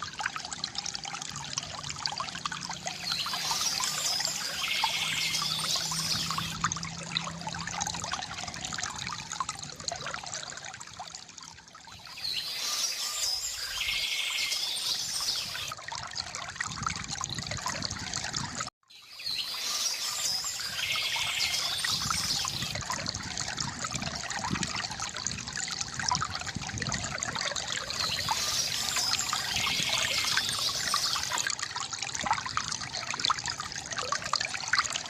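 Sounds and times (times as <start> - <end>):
river water gurgling: 0.0 - 35.0
birds chirping: 2.8 - 6.6, 12.0 - 15.7, 27.8 - 31.4.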